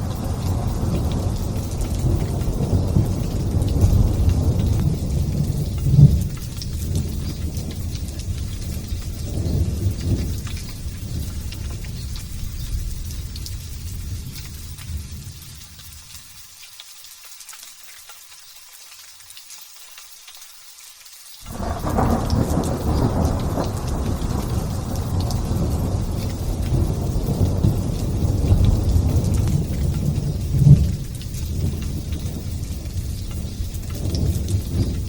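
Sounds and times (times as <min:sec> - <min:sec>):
thunder crack: 0:00.0 - 0:12.2, 0:21.5 - 0:35.0
thunder rumbling: 0:00.0 - 0:15.6, 0:21.5 - 0:35.0
light rain hissing: 0:00.0 - 0:35.0.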